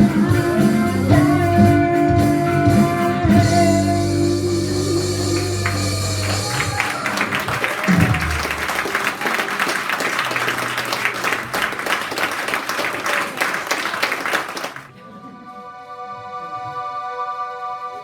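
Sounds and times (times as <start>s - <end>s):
audience clapping: 5.1s - 14.9s.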